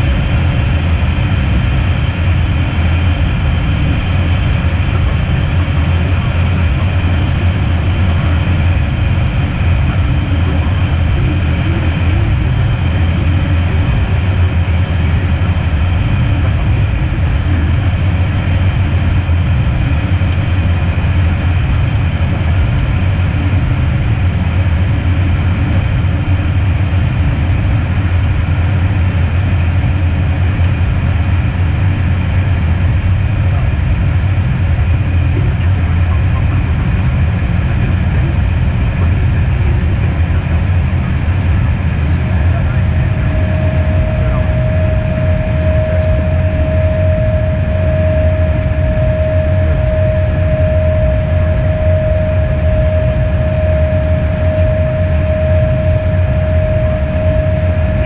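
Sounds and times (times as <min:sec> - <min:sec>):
jet cockpit airflow and engine drone: 0:00.0 - 0:58.0.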